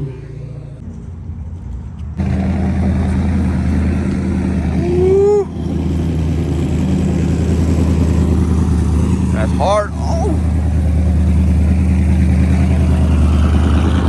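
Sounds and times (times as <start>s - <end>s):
truck engine rumbling: 0.0s - 14.0s
short whoop-like tone: 4.7s - 5.7s.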